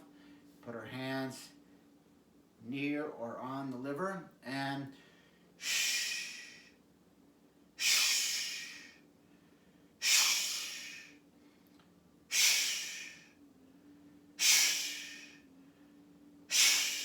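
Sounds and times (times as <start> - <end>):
forceful shh breaths: 5.0 - 6.8, 7.8 - 11.7, 12.3 - 13.4, 14.4 - 17.0.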